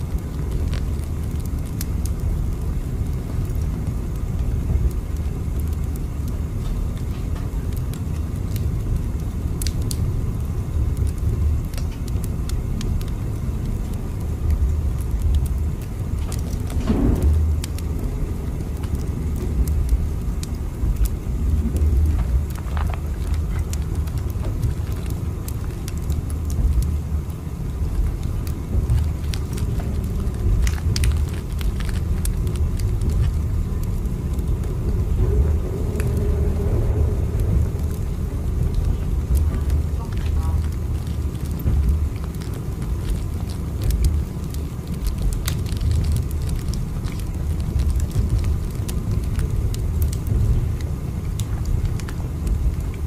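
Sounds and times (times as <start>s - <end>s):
moving train rumble: 11.2s - 52.9s.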